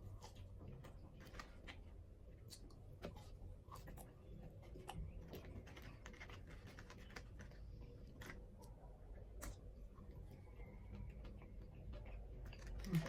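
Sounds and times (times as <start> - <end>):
food handling clicks and crackles: 10.6 - 13.0.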